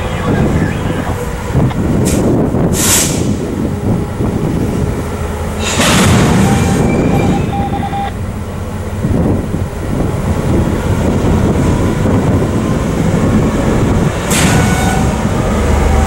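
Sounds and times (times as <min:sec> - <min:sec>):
train rumbling: 0:00.0 - 0:16.0
loud hissing bursts: 0:02.0 - 0:03.4.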